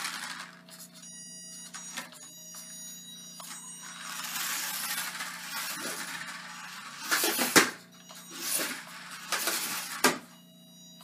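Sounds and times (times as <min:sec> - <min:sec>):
toy truck motor and tyres rushing: 0:00.0 - 0:00.6, 0:03.8 - 0:07.7, 0:08.3 - 0:10.0.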